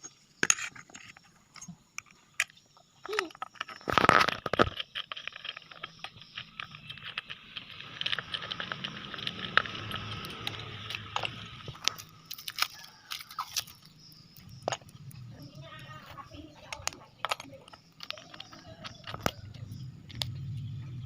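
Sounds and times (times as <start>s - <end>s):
packaging crinkling: 3.4s - 14.9s.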